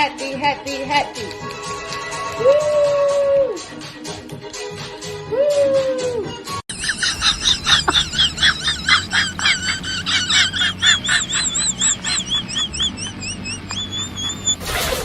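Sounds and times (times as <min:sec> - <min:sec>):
high-pitched squeaky notes: 0:06.7 - 0:15.0.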